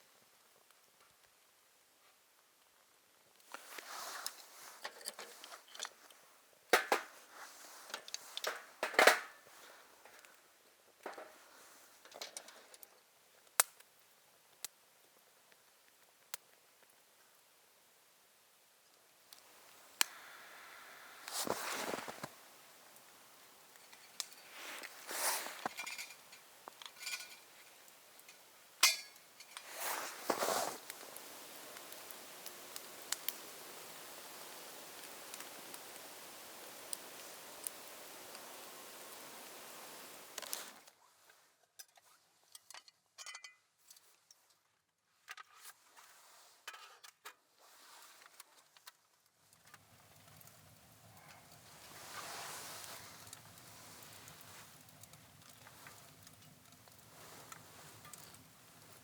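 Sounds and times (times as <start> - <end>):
rustling and handling noises: 3.4 - 13.1, 21.1 - 31.5, 40.3 - 59.0
rustling of gear: 29.6 - 30.8.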